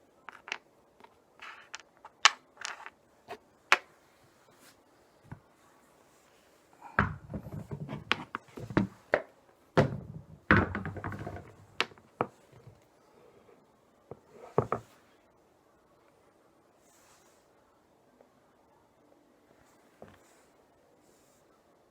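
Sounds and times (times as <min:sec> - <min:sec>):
irregular thumps and clunks: 0:07.0 - 0:09.2, 0:09.8 - 0:12.8.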